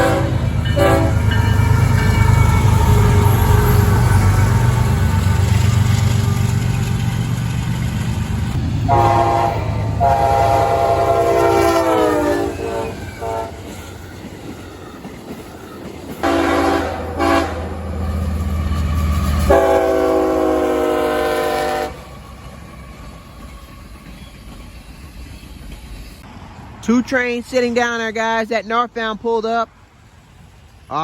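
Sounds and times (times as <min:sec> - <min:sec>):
locomotive air horn blasts: 0:00.0 - 0:01.8, 0:08.8 - 0:13.7, 0:16.2 - 0:17.9, 0:19.5 - 0:22.1
locomotive engine rumble: 0:00.0 - 0:26.9.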